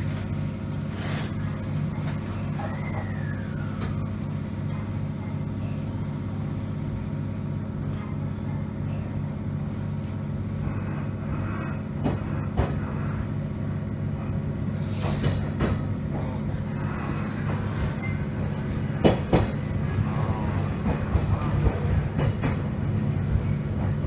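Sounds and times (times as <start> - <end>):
train running on board hum: 0.0 - 24.0.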